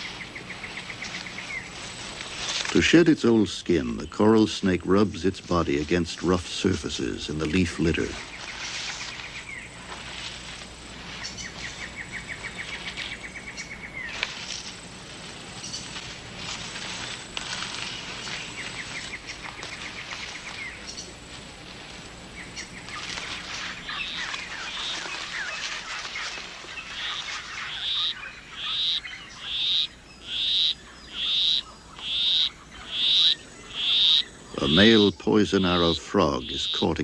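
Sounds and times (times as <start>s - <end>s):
rainforest chirps and trills: 0.0s - 37.0s
frog high repeated call: 26.9s - 37.0s.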